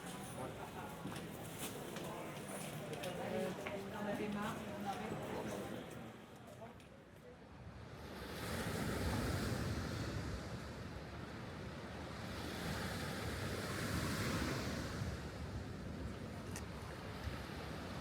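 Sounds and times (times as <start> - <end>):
sea waves washing on shore: 8.0 - 18.0.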